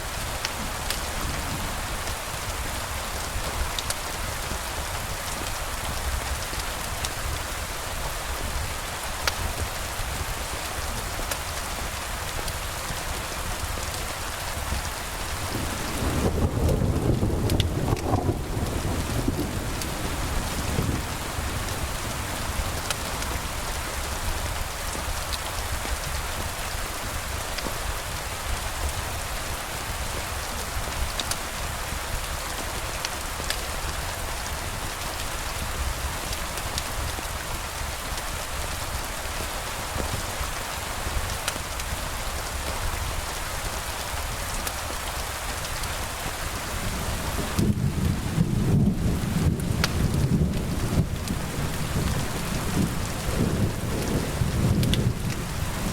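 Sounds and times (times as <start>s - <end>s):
rain falling: 0.0s - 55.9s
thunder rolling: 15.4s - 22.7s, 47.0s - 55.9s.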